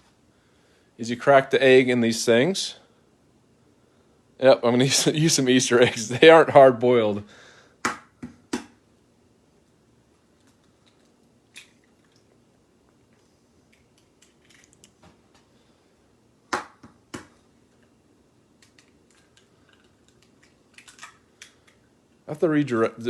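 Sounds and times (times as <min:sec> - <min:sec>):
eggshell cracking: 0:10.2 - 0:15.0, 0:16.5 - 0:22.2.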